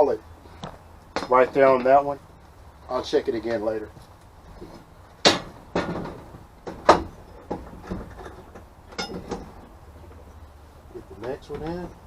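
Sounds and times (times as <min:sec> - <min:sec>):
metal clanks and knocks: 0:04.6 - 0:10.2.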